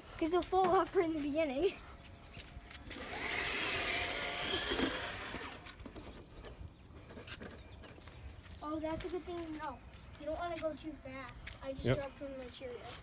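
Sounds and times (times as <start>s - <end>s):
toy car motor whirring: 2.9s - 6.0s.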